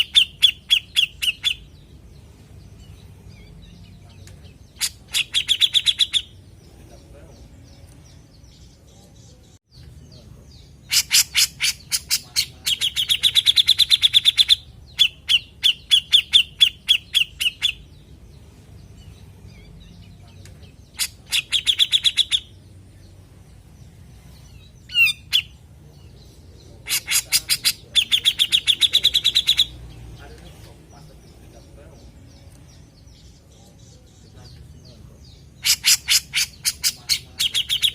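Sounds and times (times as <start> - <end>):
bird calling harsh notes: 0.0 - 2.0, 4.6 - 6.6, 10.7 - 18.1, 20.8 - 22.6, 26.8 - 29.9, 35.3 - 37.9.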